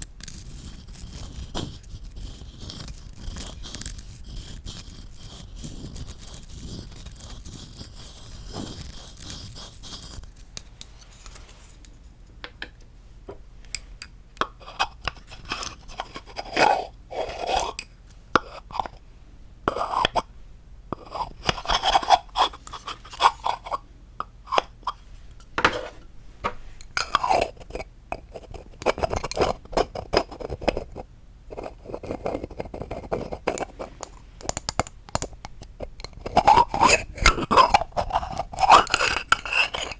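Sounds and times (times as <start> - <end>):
scratching on wood: 0.2 - 11.9, 21.0 - 23.8, 25.6 - 34.6, 35.8 - 39.9.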